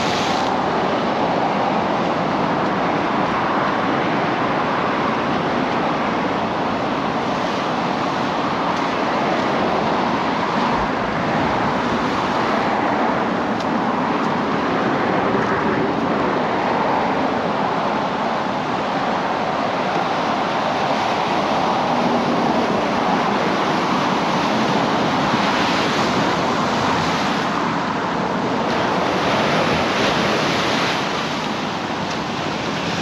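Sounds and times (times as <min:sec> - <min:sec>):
ocean surf breaking: 0:00.0 - 0:33.0.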